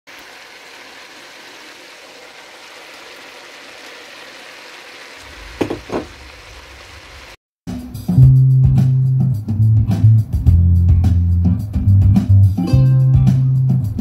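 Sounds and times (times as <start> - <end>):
vegetables sizzling in a wok: 0.1 - 7.4
loud bumps: 5.3 - 6.4.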